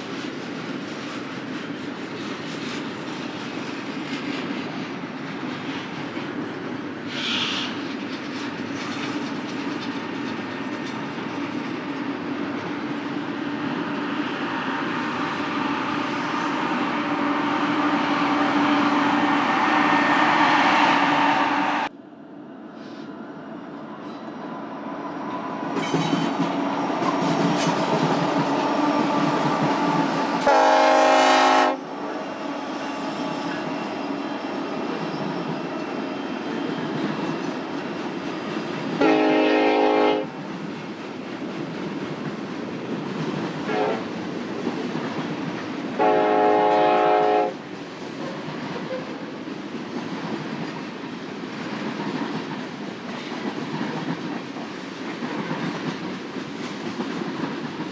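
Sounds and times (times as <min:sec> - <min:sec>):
train wheels rumbling on rails: 0:00.0 - 0:22.0, 0:22.8 - 0:57.9
train air horn blasts: 0:16.9 - 0:21.9, 0:30.4 - 0:33.8, 0:39.0 - 0:40.3, 0:43.7 - 0:44.1, 0:46.0 - 0:47.6.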